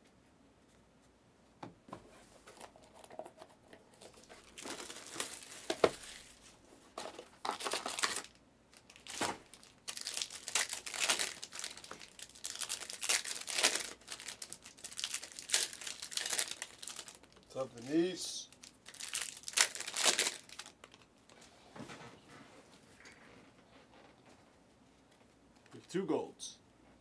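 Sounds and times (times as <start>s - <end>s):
card pack wrappers tearing: 4.0s - 6.4s, 7.1s - 21.1s.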